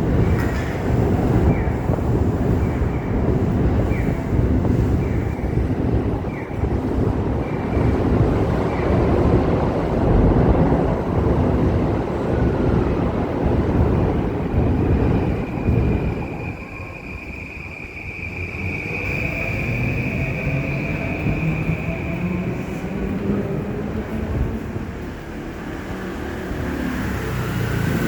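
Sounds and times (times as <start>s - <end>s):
low street rumble: 0.0s - 28.0s
wind buffeting microphone: 0.0s - 28.0s.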